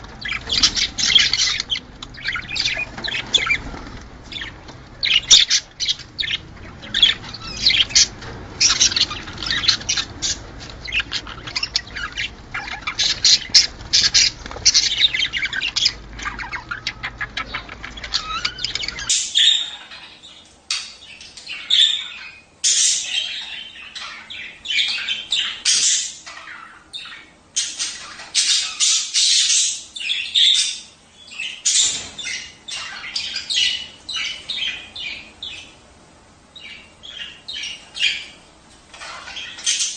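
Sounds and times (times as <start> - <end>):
low background rumble: 0.0 - 19.1
budgerigars chattering: 0.0 - 35.8, 36.6 - 39.9.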